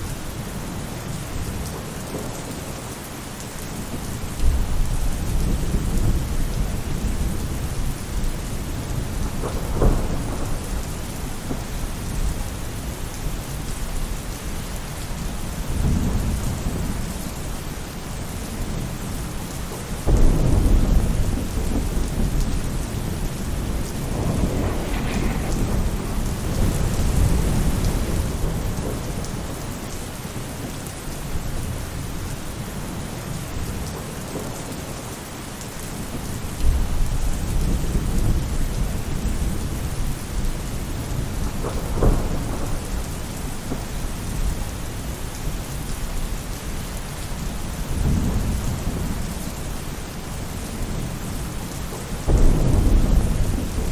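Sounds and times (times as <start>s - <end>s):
rain falling on a roof: 0.0s - 53.9s
rolling thunder: 3.9s - 17.6s, 18.5s - 30.6s, 36.1s - 45.9s, 47.4s - 53.9s
sharp thunder crack: 20.1s - 29.3s, 52.3s - 53.9s.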